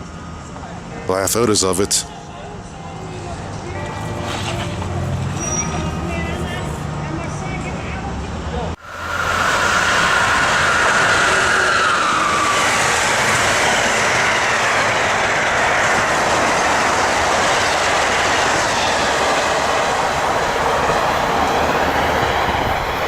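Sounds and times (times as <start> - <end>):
train wheels rushing on rail: 8.2 - 23.0
falling whine: 8.8 - 23.0.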